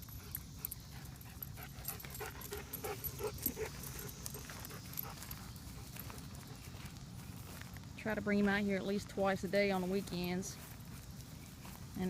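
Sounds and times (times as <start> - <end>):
dog panting: 0.0 - 7.0.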